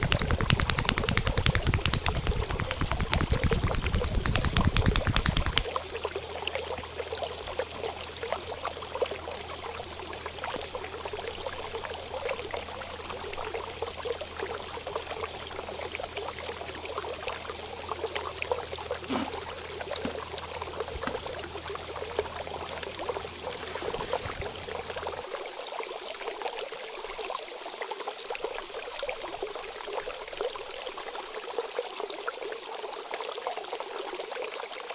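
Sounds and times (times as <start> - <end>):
water trickling: 0.0 - 25.7.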